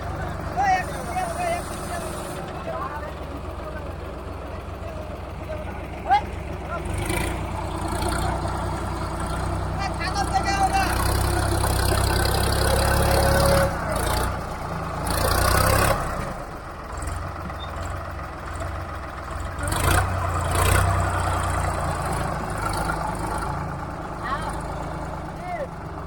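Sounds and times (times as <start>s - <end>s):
tractor engine humming: 0.0s - 26.0s.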